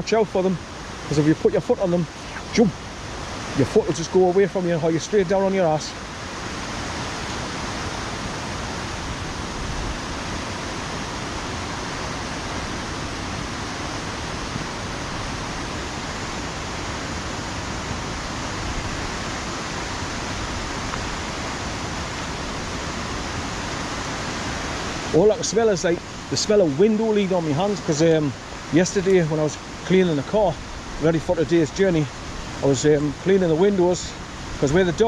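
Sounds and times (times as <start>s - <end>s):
heavy rain: 0.0s - 35.0s
running water: 0.0s - 35.0s.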